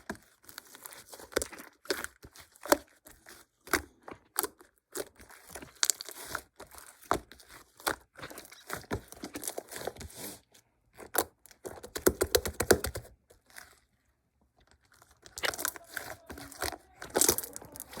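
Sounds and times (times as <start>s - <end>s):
paper or plastic wrap crinkling: 14.7s - 18.0s.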